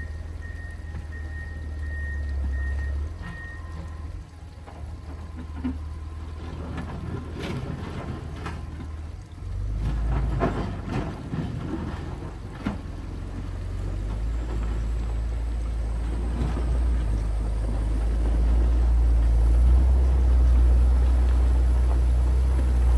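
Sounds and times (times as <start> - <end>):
diesel engine rumbling: 0.0 - 22.9
machine knocks and clatters: 9.8 - 15.4.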